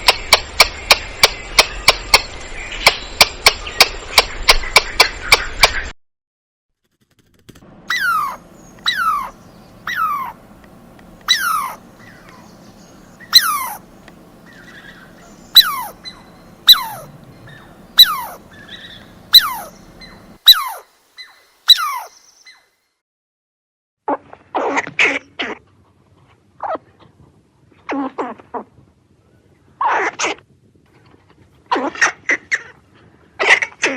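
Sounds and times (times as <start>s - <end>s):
squirrel alarm calls: 7.9s - 10.5s, 11.2s - 22.6s.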